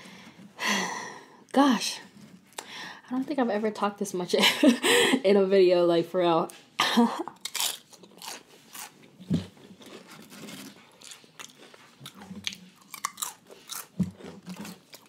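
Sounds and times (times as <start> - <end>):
crisp chips crunching: 7.3 - 15.0.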